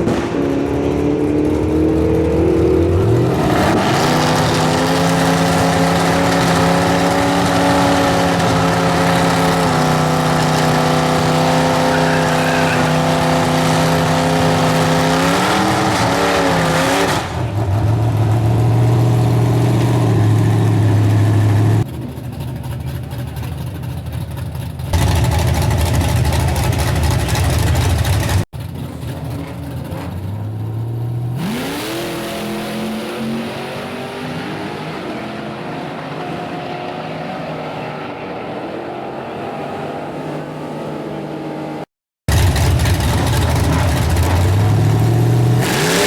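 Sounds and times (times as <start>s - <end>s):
truck engine revving: 0.0s - 23.5s, 24.8s - 46.0s.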